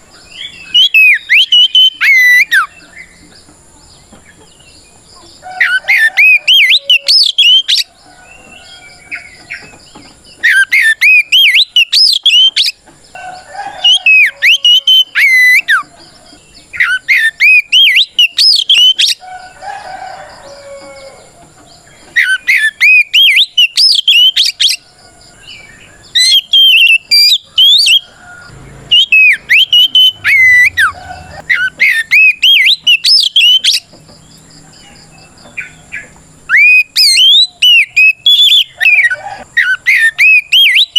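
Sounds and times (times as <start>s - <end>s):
bird singing whistled phrases: 0.4s - 2.7s, 5.6s - 7.9s, 10.4s - 12.8s, 13.8s - 15.9s, 16.8s - 19.2s, 22.2s - 24.8s, 26.1s - 28.1s, 28.9s - 33.9s, 36.5s - 40.9s.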